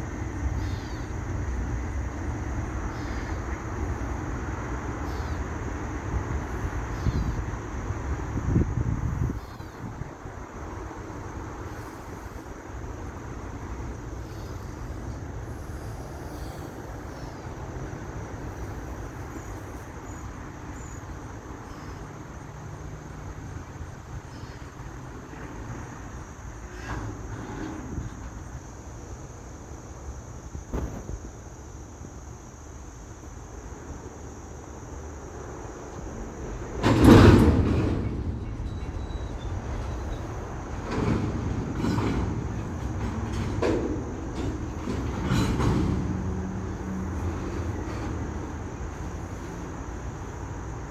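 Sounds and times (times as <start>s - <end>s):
freight train rolling by: 0.0s - 50.9s
sharp clanks: 36.8s - 50.0s.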